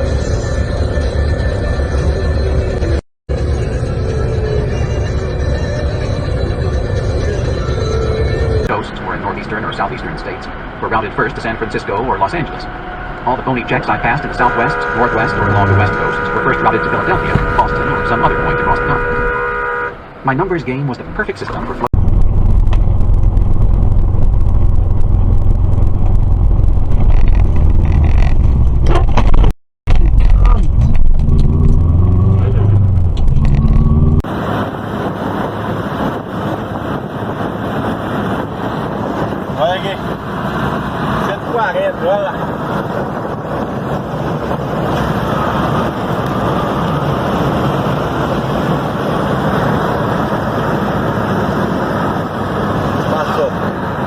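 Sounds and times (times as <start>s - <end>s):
vehicle engine and road rumble: 0.0s - 54.0s.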